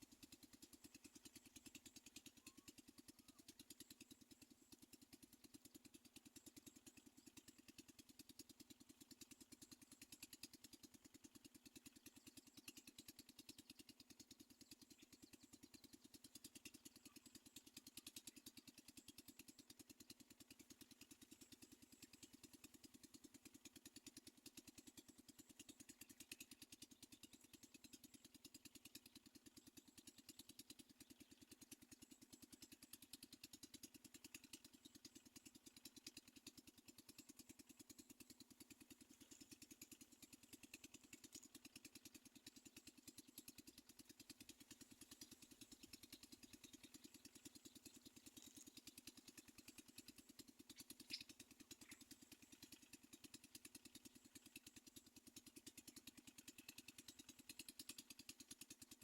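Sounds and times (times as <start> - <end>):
rapidly pulsing buzz: 34.2 - 55.0.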